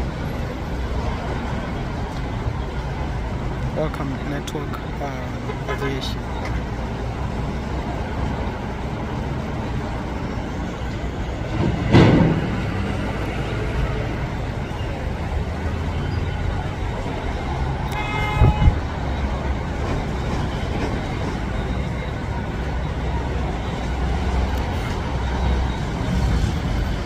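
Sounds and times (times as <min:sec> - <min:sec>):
traffic noise: 0:00.0 - 0:27.0
vehicle horn toot: 0:17.9 - 0:18.8.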